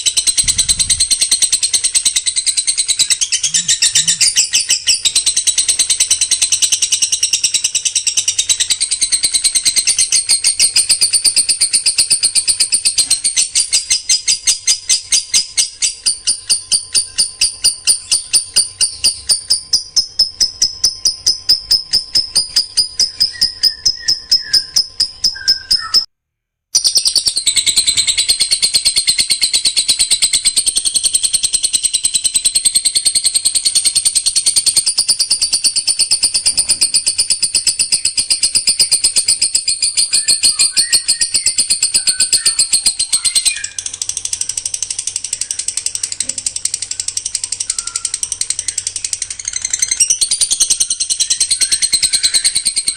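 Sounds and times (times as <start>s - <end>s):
songbird rapid high notes: 0.0s - 7.3s.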